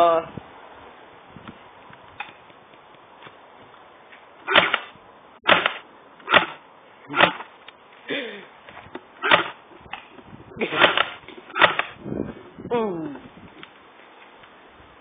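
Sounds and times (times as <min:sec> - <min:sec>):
bb gun shots: 0:04.5 - 0:07.5, 0:09.2 - 0:09.6, 0:10.7 - 0:12.0.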